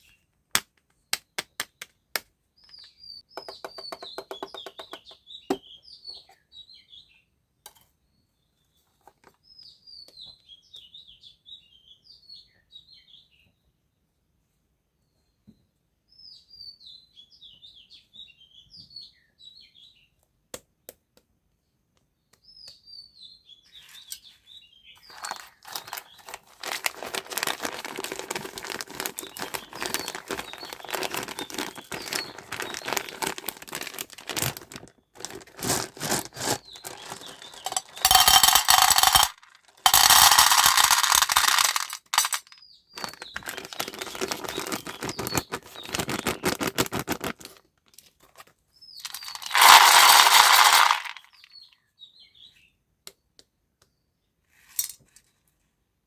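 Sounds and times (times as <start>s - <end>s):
dense crackling and crunching: 25.1s - 47.6s, 49.0s - 51.4s.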